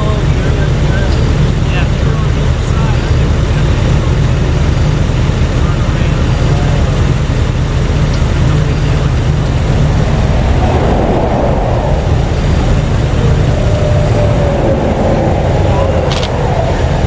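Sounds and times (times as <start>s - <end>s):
highway traffic rushing past: 0.0s - 17.0s.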